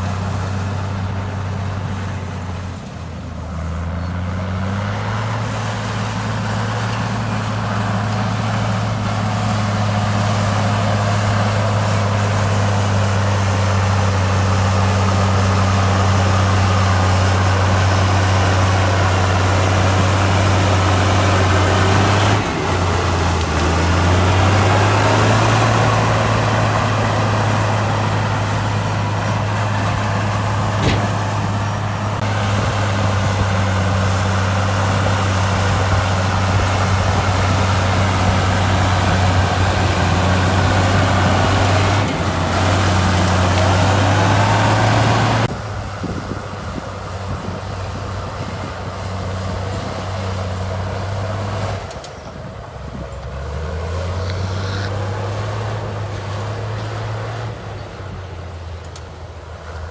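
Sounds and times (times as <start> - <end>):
heavy diesel engine running: 0.0 - 59.9
sharp click: 30.8 - 31.5.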